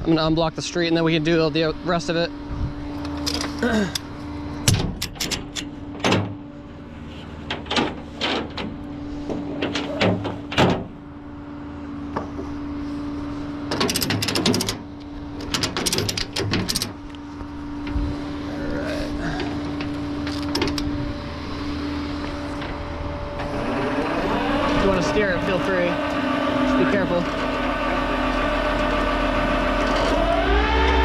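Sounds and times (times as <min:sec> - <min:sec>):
sharp knocks and clanks: 0:04.6 - 0:06.4, 0:07.4 - 0:11.0
tow truck idling: 0:19.3 - 0:30.6.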